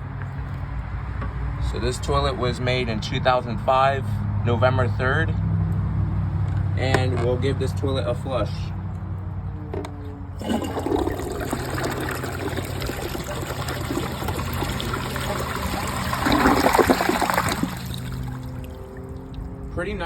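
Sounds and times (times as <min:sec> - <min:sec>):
toilet flushing: 0:10.4 - 0:19.4.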